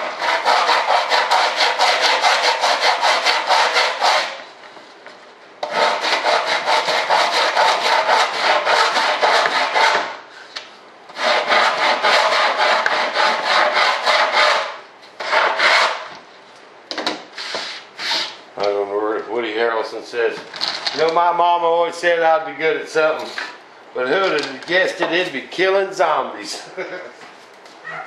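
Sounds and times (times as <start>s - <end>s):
sandpaper sanding fibreglass: 0.0s - 4.4s, 5.6s - 10.2s, 11.2s - 16.1s.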